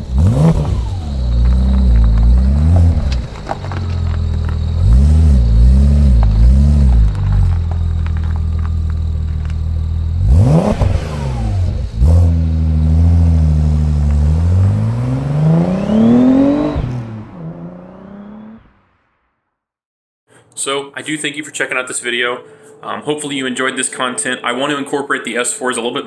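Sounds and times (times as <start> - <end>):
car engine revving and accelerating: 0.0 - 19.0.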